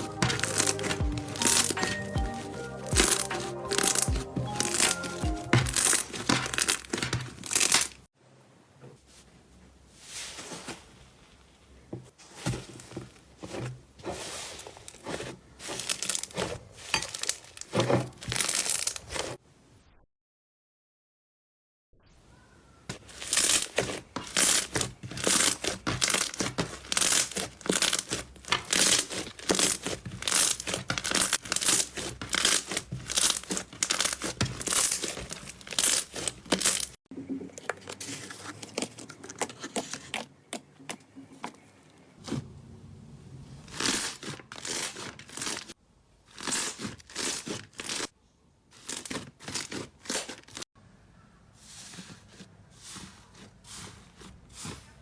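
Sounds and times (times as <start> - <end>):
slime crackling and popping: 0.0 - 8.1, 15.6 - 19.2, 23.0 - 37.0.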